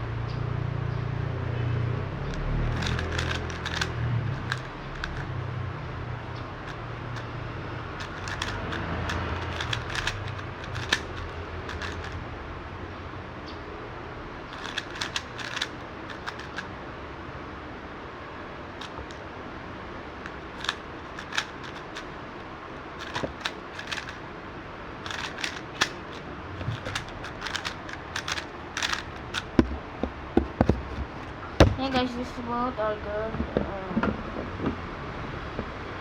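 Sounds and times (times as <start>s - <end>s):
speed cube clicking: 2.2s - 5.3s, 6.4s - 12.2s, 14.5s - 16.7s, 18.8s - 19.2s, 20.2s - 24.2s, 25.0s - 29.8s.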